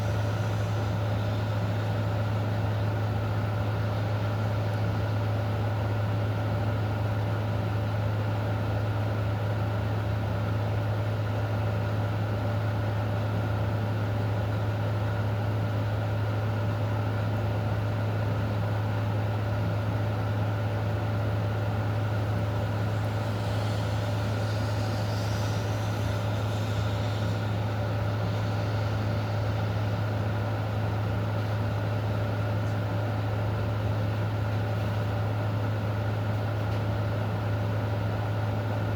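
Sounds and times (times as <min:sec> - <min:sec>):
low mechanical hum: 0:00.0 - 0:38.9.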